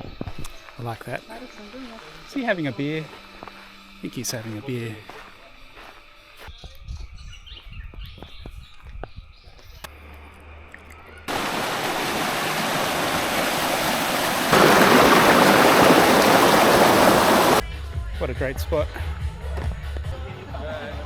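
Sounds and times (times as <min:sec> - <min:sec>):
faint outdoor ambience: 0:00.0 - 0:06.6, 0:09.3 - 0:17.6
waterfall rushing: 0:11.3 - 0:17.6.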